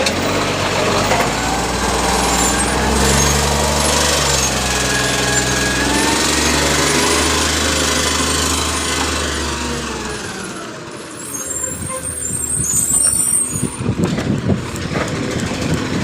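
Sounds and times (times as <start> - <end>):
truck rattling and knocking: 0.0 - 11.0, 11.7 - 16.0
garbage truck engine: 0.0 - 16.0.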